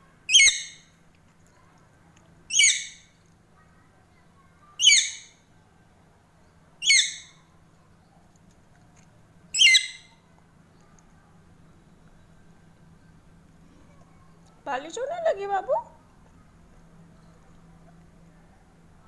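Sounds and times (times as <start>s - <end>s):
parrot calling: 0.3s - 0.8s, 2.5s - 3.0s, 4.8s - 5.3s, 6.8s - 7.4s, 9.6s - 10.1s.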